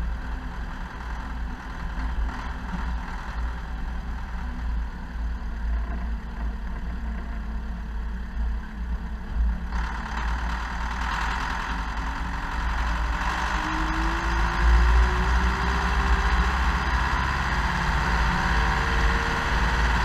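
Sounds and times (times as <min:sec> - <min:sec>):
tractor diesel engine rumbling: 0:00.0 - 0:20.0.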